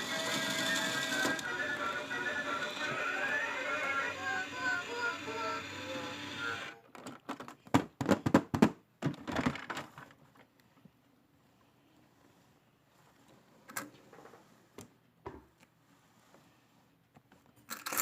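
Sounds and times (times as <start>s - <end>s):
plastic clicks and knocks: 6.9s - 10.1s.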